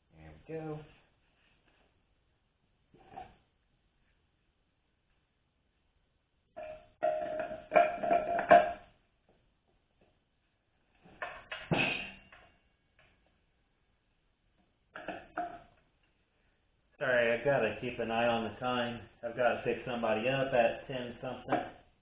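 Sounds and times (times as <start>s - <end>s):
metal parts clanking and ringing: 6.6s - 8.8s.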